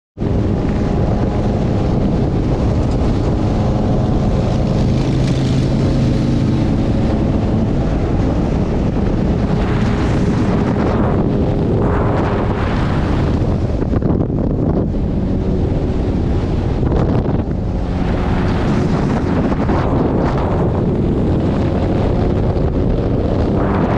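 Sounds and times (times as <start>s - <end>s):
low rumble: 0.2s - 23.9s
wind noise on microphone: 0.2s - 23.9s.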